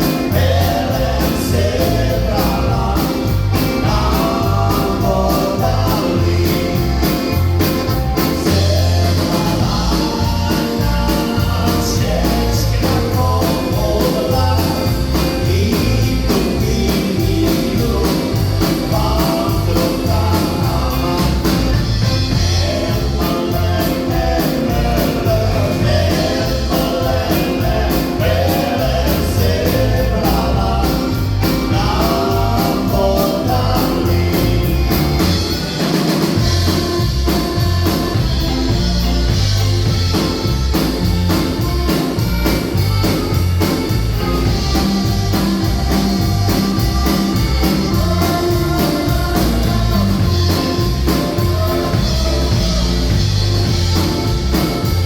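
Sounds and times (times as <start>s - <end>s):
person singing: 0.0s - 39.2s, 41.6s - 55.0s
polka band playing: 0.0s - 55.0s.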